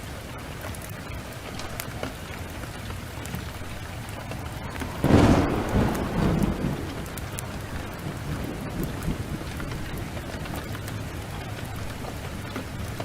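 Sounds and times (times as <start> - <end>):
heavy rain downpour: 0.0 - 13.0
wood fire crackling: 0.0 - 13.0
thunder clap rumbling: 3.4 - 13.0.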